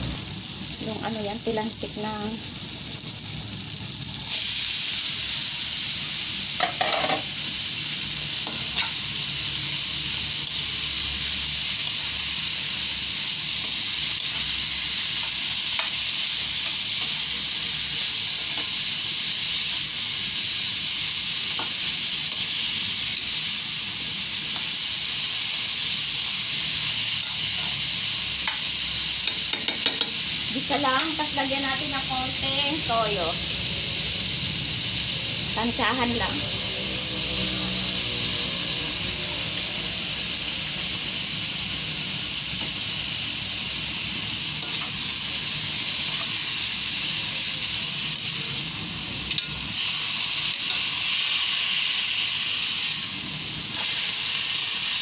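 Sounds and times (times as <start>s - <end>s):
food sizzling in hot oil: 0.0s - 55.0s
spatula scraping a pan: 6.6s - 7.2s.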